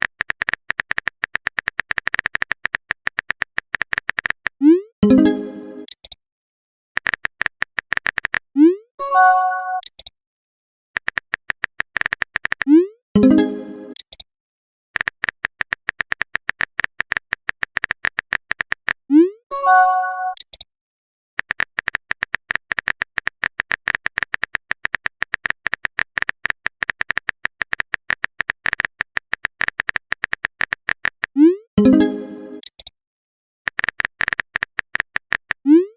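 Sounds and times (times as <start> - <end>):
rapid keyboard typing clicks: 0.0 - 4.6, 7.0 - 8.5, 11.0 - 12.8, 13.9 - 14.2, 15.0 - 19.0, 21.4 - 31.4, 32.6 - 32.9, 33.7 - 35.7.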